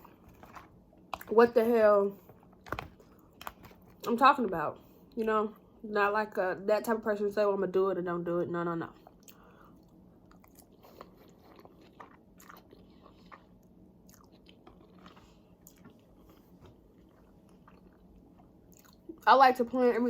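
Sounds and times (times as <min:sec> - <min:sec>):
chewing food: 0:00.0 - 0:01.4, 0:08.9 - 0:19.2.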